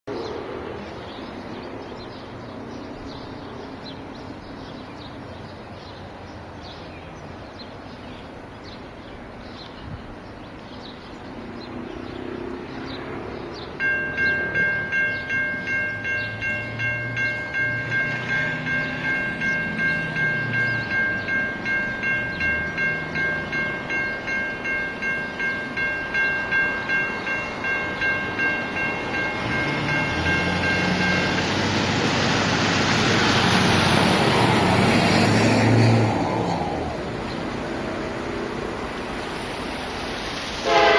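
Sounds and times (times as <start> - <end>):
diesel locomotive engines: 0.1 - 40.9
train wheel noise: 12.2 - 40.9
crossing warning bell ringing: 13.8 - 33.3, 40.6 - 40.9.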